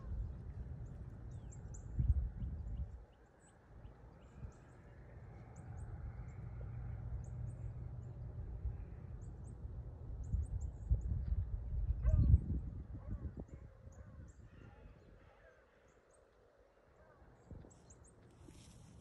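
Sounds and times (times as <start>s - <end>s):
small birds chirping: 0.0s - 6.6s.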